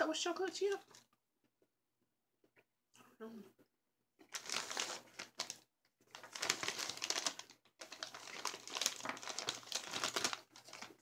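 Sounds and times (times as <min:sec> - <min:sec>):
candy wrapper crinkling: 0:00.3 - 0:01.2, 0:04.2 - 0:11.0.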